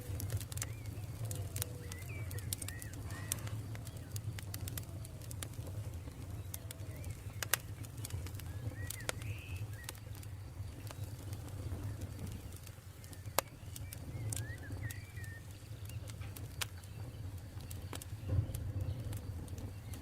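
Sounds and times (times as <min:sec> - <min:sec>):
birds chirping: 0:00.0 - 0:20.0
campfire crackling and popping: 0:00.0 - 0:20.0
bird whistling falling notes: 0:14.0 - 0:15.5.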